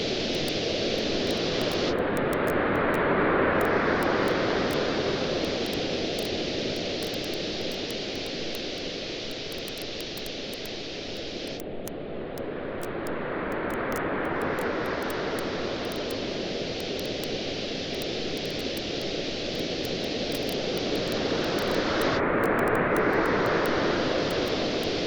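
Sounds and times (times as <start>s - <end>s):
waves washing on a beach: 0.0s - 11.4s, 12.2s - 25.0s
campfire crackling and popping: 5.4s - 10.8s, 12.8s - 24.6s.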